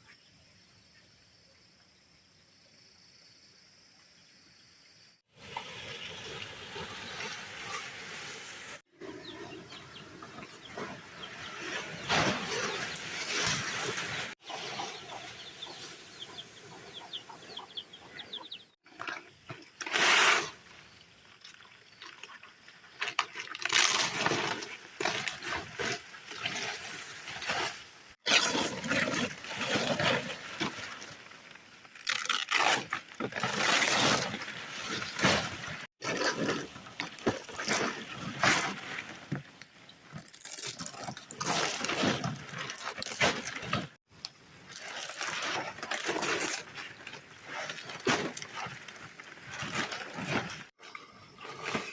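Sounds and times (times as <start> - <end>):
water splashing and rushing: 5.3 - 8.8, 11.0 - 15.6.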